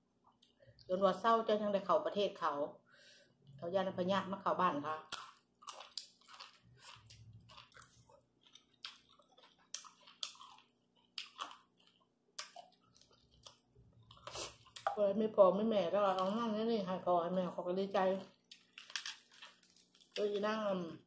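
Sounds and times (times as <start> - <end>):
person chewing: 5.1 - 14.9, 18.3 - 20.2.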